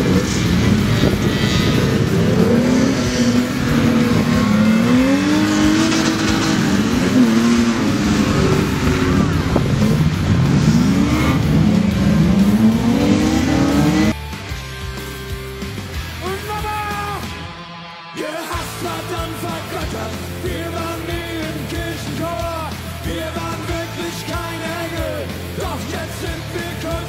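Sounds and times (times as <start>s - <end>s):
stock car engines racing: 0.0s - 14.2s
music: 0.0s - 27.0s.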